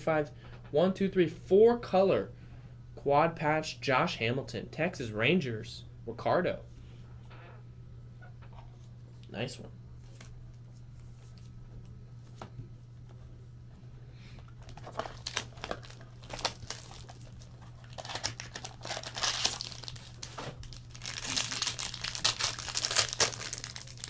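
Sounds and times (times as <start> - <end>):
foil wrapper tearing and crinkling: 14.5 - 24.0.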